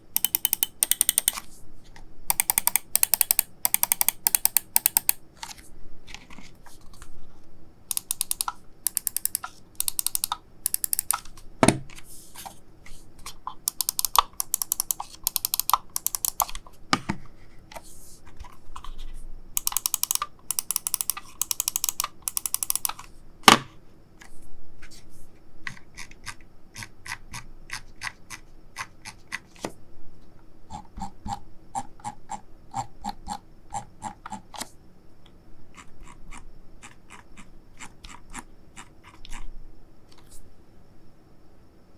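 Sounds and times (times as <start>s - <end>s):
mouse buttons clicking: 0.2s - 1.4s, 2.3s - 5.2s, 7.9s - 11.4s, 13.6s - 16.6s, 19.6s - 23.6s.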